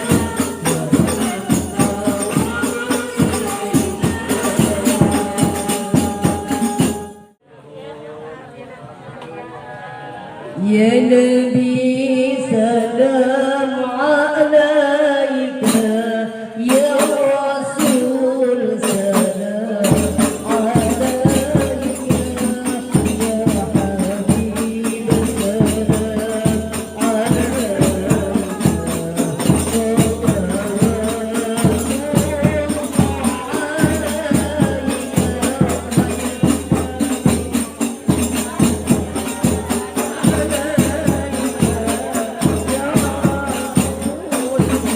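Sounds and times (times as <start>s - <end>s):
frame drums with jingles: 0.0s - 7.3s, 16.7s - 18.2s, 18.8s - 44.9s
women singing devotional song: 0.0s - 7.4s, 10.0s - 44.9s.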